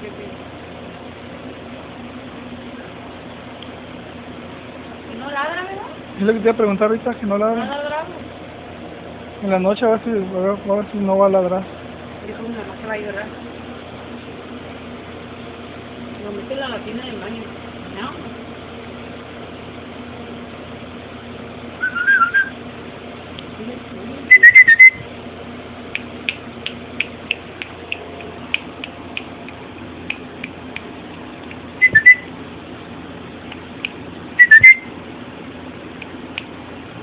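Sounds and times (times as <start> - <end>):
puppy whining and yelping: 21.8 - 22.5, 34.4 - 34.8.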